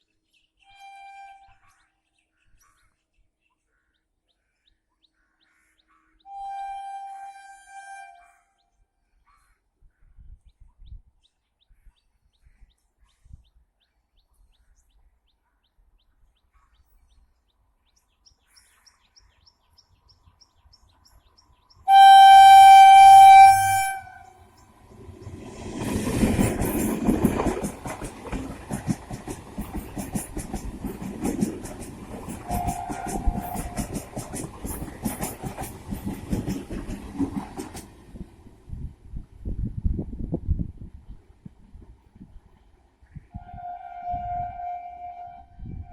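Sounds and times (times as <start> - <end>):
train horn: 0.7 - 1.8, 6.3 - 8.6, 21.9 - 24.4, 32.4 - 34.1, 43.3 - 45.9
train wheels clattering over rail joints: 25.1 - 38.4.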